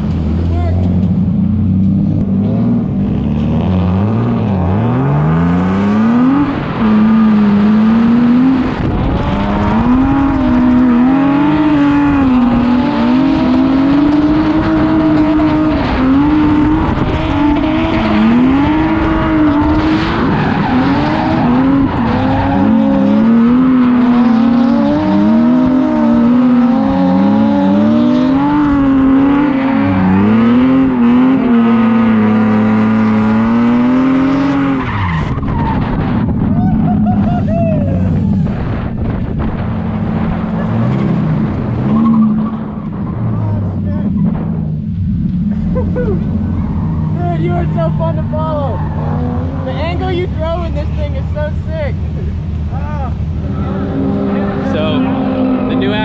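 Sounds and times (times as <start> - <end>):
car engine revving hard: 2.3 - 37.2, 53.2 - 56.0
tyres squealing: 45.8 - 51.0.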